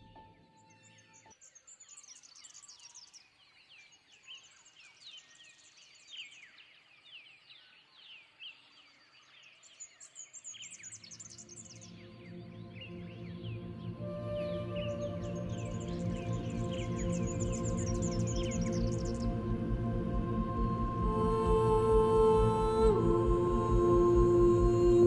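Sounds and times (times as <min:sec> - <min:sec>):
music: 0:00.0 - 0:01.3, 0:11.4 - 0:25.0
small birds chirping: 0:00.0 - 0:19.7.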